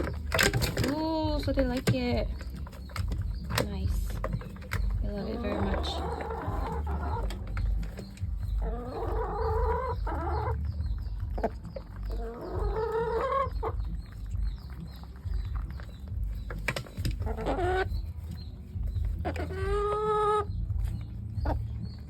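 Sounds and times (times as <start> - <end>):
hens clucking: 0.0 - 22.0
hen drawn-out calls: 4.8 - 7.9, 8.5 - 10.6, 12.1 - 14.0.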